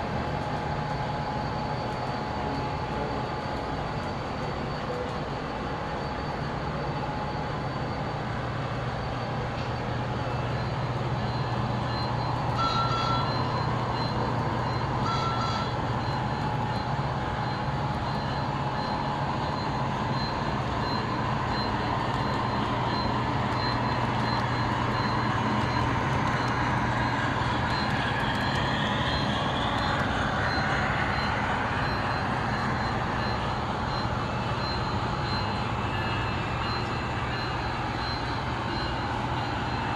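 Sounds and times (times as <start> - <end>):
model trains rolling hum: 0.0 - 39.9
short beeps: 10.6 - 39.9.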